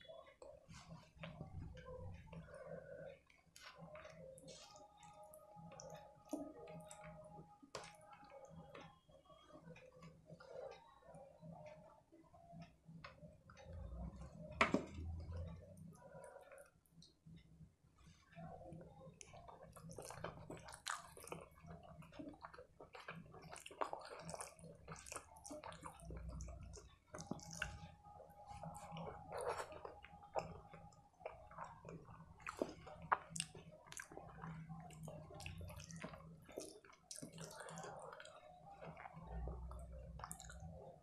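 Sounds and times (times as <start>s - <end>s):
chewing with mouth smacks: 19.1s - 41.0s.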